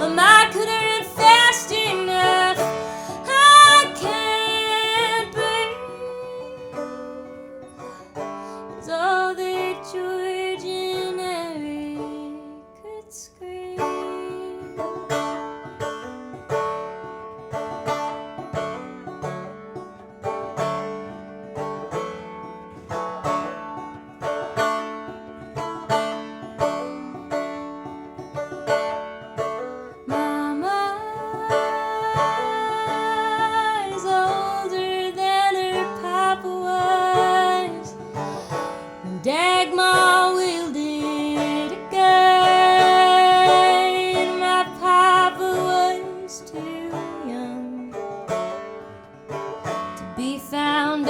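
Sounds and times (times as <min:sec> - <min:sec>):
person singing long held notes: 0:00.0 - 0:07.6, 0:30.1 - 0:47.9
acoustic string instrument picking: 0:00.0 - 0:51.0.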